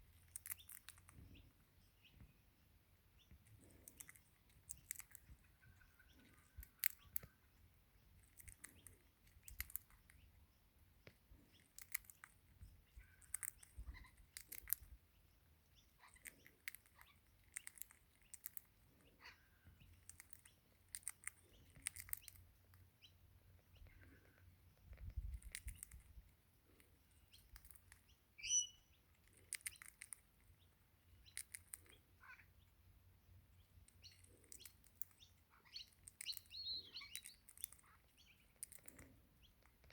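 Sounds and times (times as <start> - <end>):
bird chirp: 0.0 - 26.0, 27.1 - 39.9
bird cracking seeds clicks: 0.3 - 1.2, 3.8 - 5.3, 6.5 - 7.3, 8.2 - 10.1, 11.6 - 12.3, 13.2 - 14.9, 20.0 - 22.4, 29.2 - 30.2.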